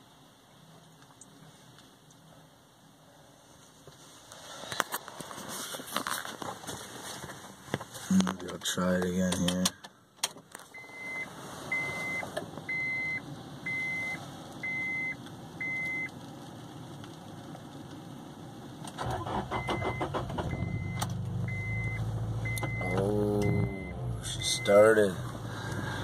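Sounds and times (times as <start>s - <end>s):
car warning chime beeping: 10.7s - 16.1s, 19.1s - 25.2s
car engine running: 10.7s - 26.0s
car starter cranking: 18.8s - 26.0s.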